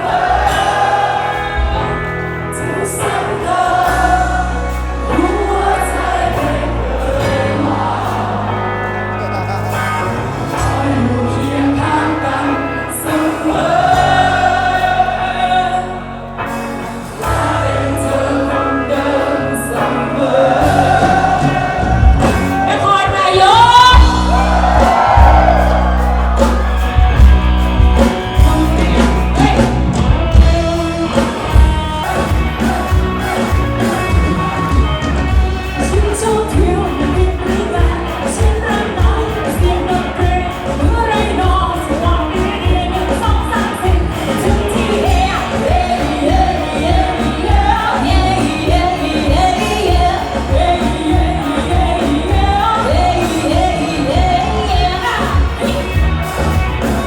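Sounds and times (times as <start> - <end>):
drums and bass beat: 0.0 - 12.1, 19.8 - 57.0
live band playing: 0.0 - 57.0
person singing: 9.1 - 16.2, 28.0 - 56.4.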